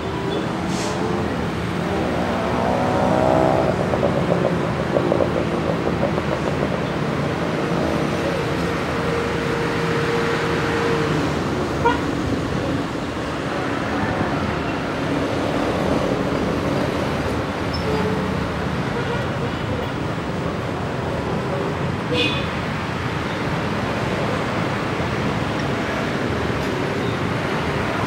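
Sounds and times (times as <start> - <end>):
diesel locomotive running: 3.7 - 20.1.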